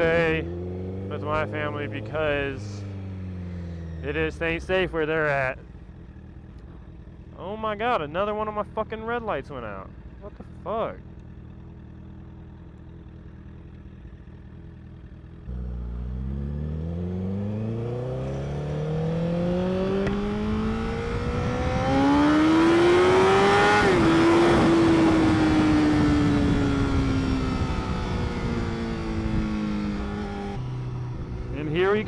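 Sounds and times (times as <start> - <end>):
motorcycle engine revving: 0.0 - 32.0
wind noise: 20.4 - 22.1, 23.8 - 30.3.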